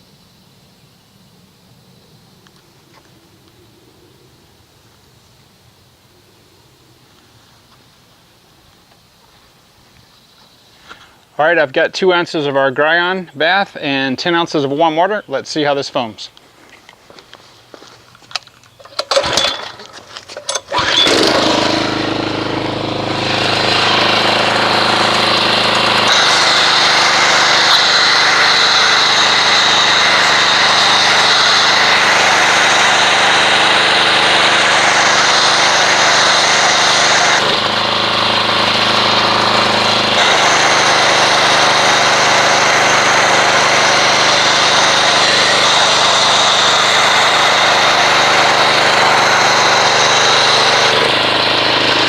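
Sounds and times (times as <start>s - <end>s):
pressure washer running: 18.8s - 52.0s.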